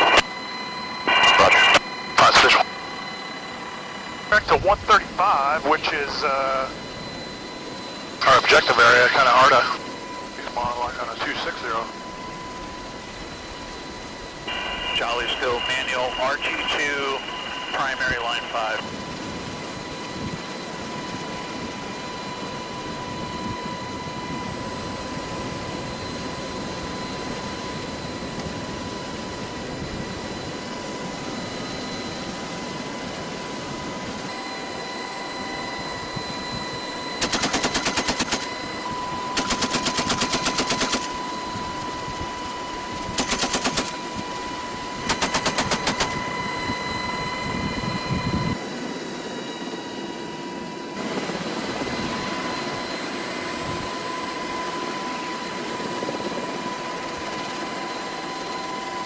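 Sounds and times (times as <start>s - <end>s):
helicopter cabin noise: 0.0s - 59.0s
machine-gun fire bursts: 37.2s - 38.5s, 39.4s - 41.1s, 43.2s - 44.0s, 45.1s - 46.1s.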